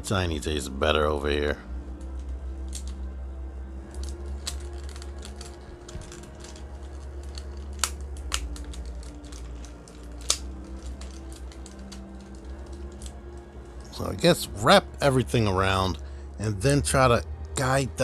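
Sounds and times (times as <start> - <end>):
plastic parts clicking and tapping: 3.9 - 13.4
sharp plastic clicks: 4.0 - 13.2.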